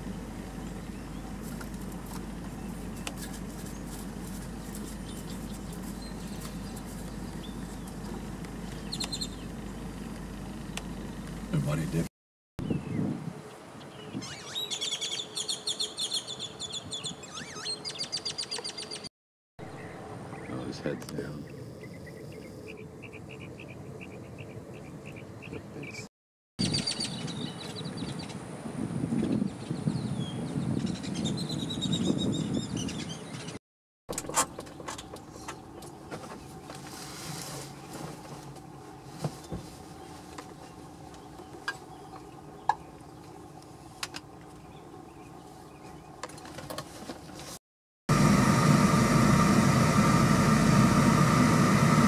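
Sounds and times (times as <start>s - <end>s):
low background rumble: 0.0s - 12.1s
bird chirps and ticks: 4.6s - 11.4s, 14.4s - 19.1s, 41.1s - 43.4s
short high bird chirps: 8.8s - 9.5s, 14.0s - 19.1s.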